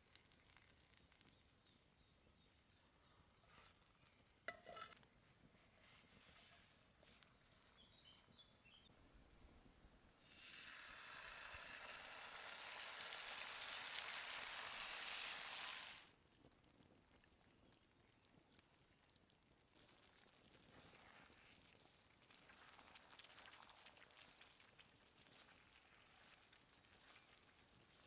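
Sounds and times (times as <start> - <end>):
vegetables sizzling in a pan: 10.2 - 16.1.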